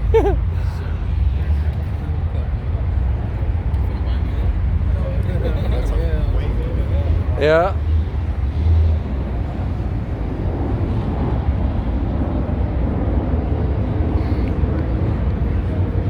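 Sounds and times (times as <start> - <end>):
road noise: 0.0 - 16.0.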